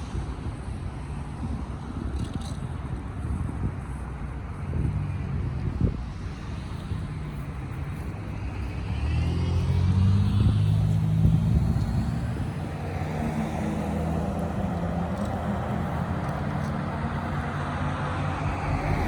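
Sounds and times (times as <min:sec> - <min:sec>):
motor vehicle driving past: 0:08.1 - 0:19.0.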